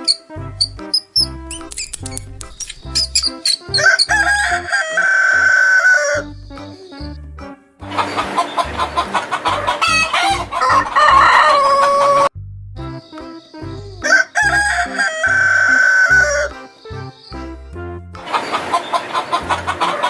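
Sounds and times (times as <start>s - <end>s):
background music low beat: 0.0s - 18.4s
rooster crowing: 3.8s - 6.2s, 9.5s - 12.3s, 14.1s - 16.5s.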